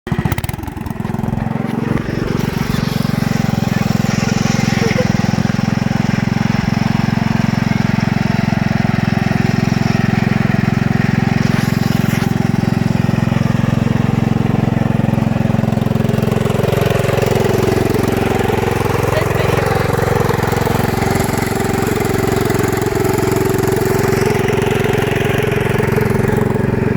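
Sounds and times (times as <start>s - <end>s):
garden tractor engine running: 0.0s - 26.9s.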